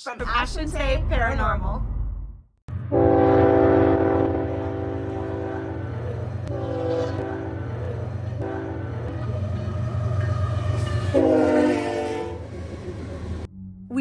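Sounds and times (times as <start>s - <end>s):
low rumble of train: 2.7s - 14.0s
train horn blasts: 2.9s - 13.4s.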